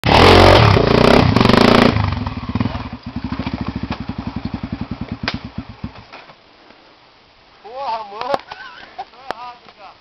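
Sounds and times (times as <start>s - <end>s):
motorcycle engine revving and chugging: 0.0s - 6.0s.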